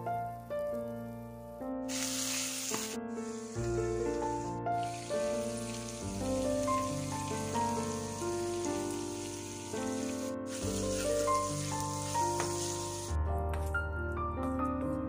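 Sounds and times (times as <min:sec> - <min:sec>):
vegetables sizzling in wok: 0:01.9 - 0:13.2.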